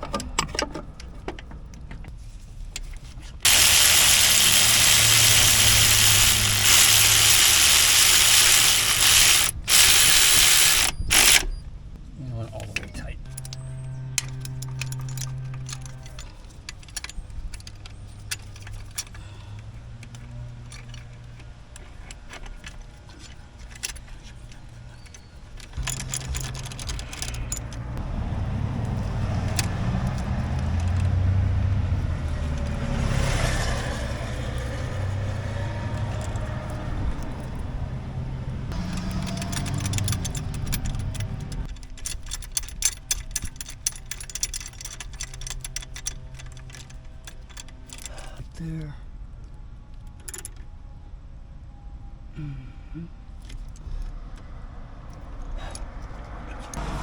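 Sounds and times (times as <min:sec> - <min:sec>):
hand tools clinking on bolts: 0:03.5 - 0:11.4, 0:14.2 - 0:27.9, 0:38.7 - 0:48.4.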